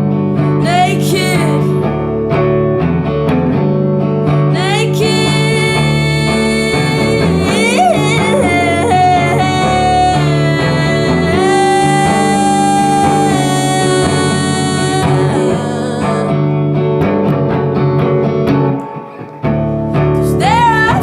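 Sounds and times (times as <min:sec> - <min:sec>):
band playing with guitars: 0:00.0 - 0:21.0
wordless singing: 0:04.6 - 0:16.4.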